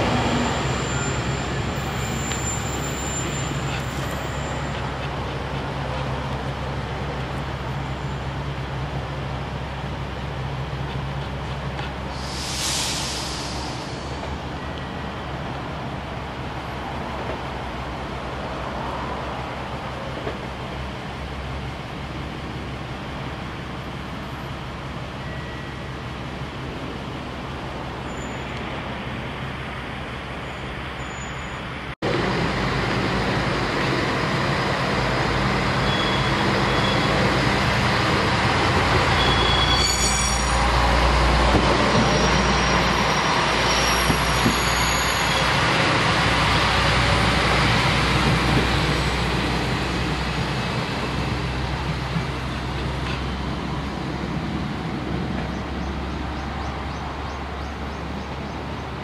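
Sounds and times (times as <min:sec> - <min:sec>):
high-pitched wheel squeal: 0:00.0 - 0:05.0, 0:28.0 - 0:28.6, 0:35.8 - 0:37.4, 0:39.0 - 0:45.6
train wheels rumbling on rails: 0:00.0 - 0:30.9, 0:31.8 - 0:59.0.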